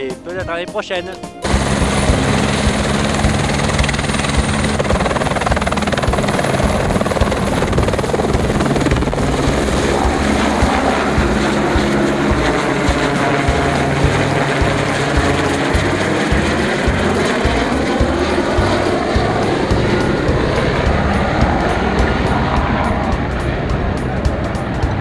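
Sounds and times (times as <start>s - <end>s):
helicopter rotor beat: 0.0s - 25.0s
high-pitched turbine whine: 1.4s - 25.0s.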